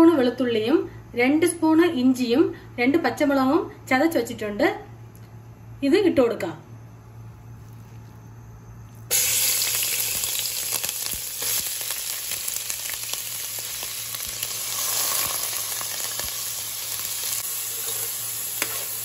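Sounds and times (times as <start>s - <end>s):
food sizzling in hot oil: 9.1s - 19.0s
small crackles of frying: 9.1s - 19.0s.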